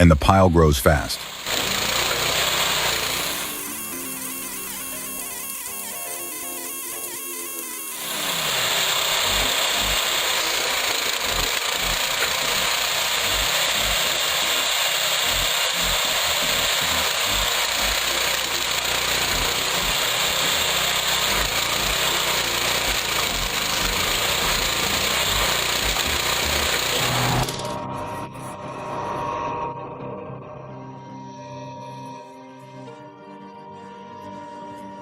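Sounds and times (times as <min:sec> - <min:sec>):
machinery running: 0:00.3 - 0:28.1.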